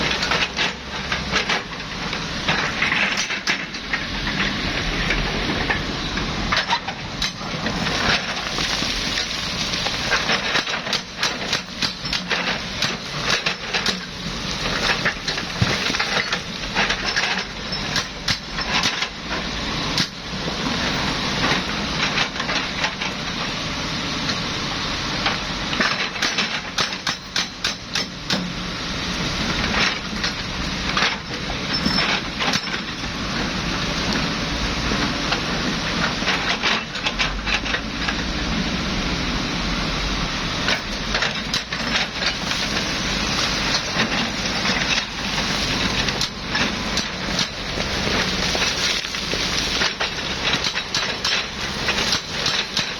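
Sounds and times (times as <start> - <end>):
excavator engine hum: 0.0 - 52.9
sharp cracking and clattering knocks: 6.5 - 19.4, 25.2 - 28.6, 40.7 - 52.9.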